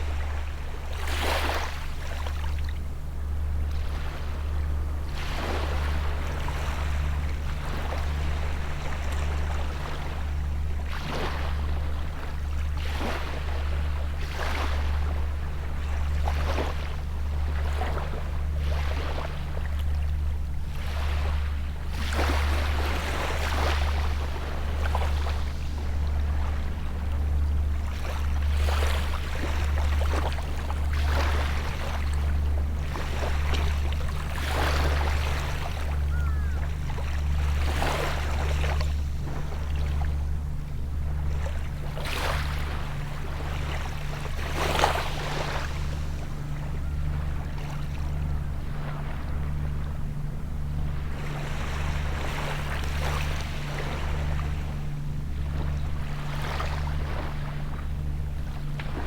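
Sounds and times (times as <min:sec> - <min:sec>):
small waves breaking on shore: 0:41.1 - 0:50.0.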